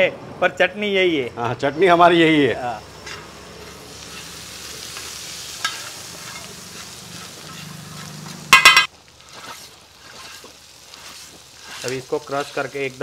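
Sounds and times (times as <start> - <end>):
eggs sizzling in a pan: 2.6 - 13.0
spatula scraping a pan: 3.0 - 13.0
spatula clattering against pan: 8.5 - 8.9.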